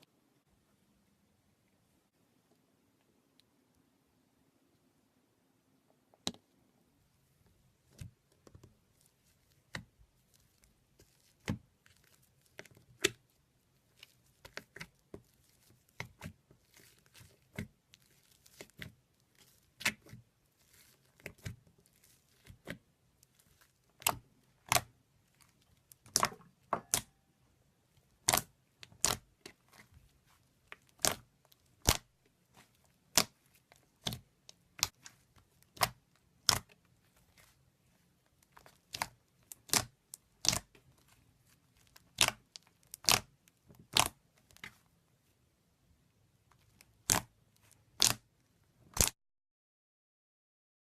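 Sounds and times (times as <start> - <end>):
slime popping and clicking: 26.0 - 27.2, 42.0 - 44.7, 47.9 - 48.2, 48.9 - 49.1.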